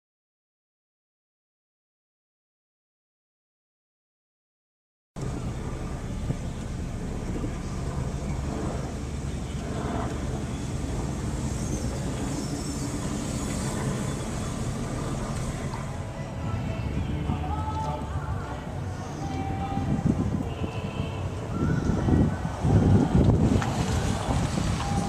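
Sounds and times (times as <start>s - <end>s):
car engines rumbling: 5.2s - 25.0s
outdoor background noise: 5.2s - 25.0s.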